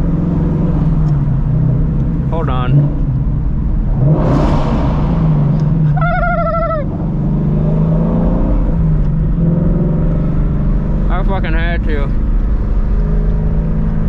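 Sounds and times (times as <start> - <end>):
car exhaust running: 0.0 - 14.0
rush of noise: 3.7 - 7.2.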